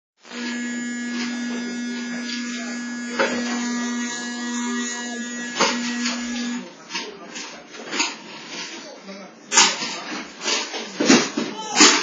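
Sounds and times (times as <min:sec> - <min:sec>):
vacuum cleaner motor buzzing: 0:00.2 - 0:06.7.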